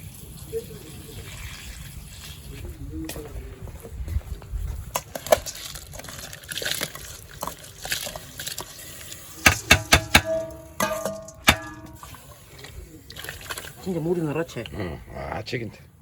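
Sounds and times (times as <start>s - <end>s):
cookware knocking and clanking: 9.5s - 12.1s
ringing metallic strikes: 9.5s - 12.2s.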